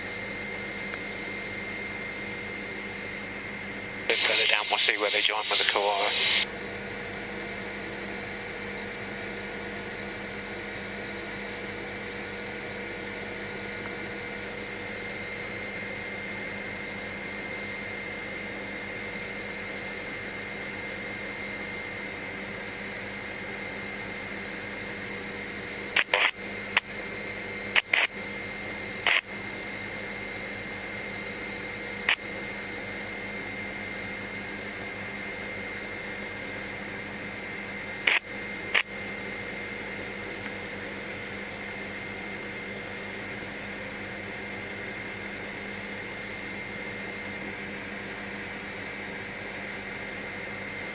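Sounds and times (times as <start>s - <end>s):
helicopter drone through intercom: 4.0s - 6.5s, 25.9s - 27.0s, 27.8s - 28.2s, 29.0s - 29.2s, 37.4s - 38.9s
short sharp clicks: 26.0s - 26.3s.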